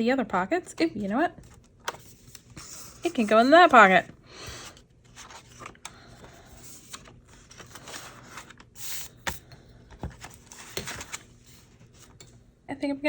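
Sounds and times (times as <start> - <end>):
paper rustling and scraping: 1.4 - 9.4, 10.0 - 12.2.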